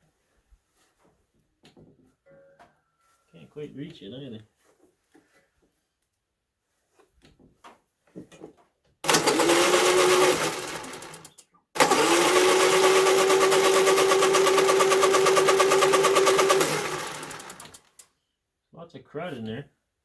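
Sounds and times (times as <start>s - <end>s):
generator engine cranking whine: 9.0s - 18.0s.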